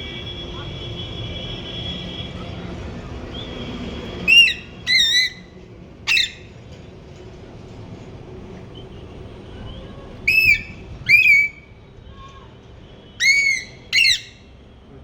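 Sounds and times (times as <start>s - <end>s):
parrot whistle-like calls: 4.3s - 5.5s, 6.1s - 6.5s, 10.3s - 11.7s, 13.2s - 14.4s.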